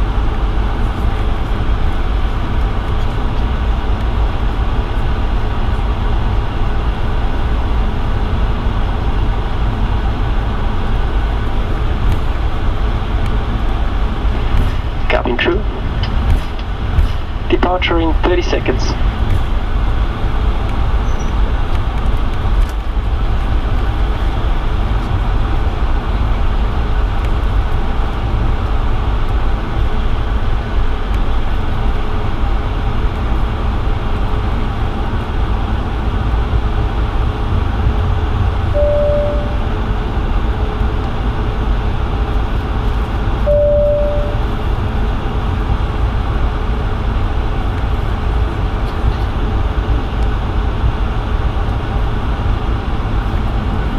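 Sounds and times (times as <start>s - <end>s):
airplane cabin rumble: 0.0s - 53.9s
short even tones: 38.8s - 39.7s, 43.5s - 44.4s.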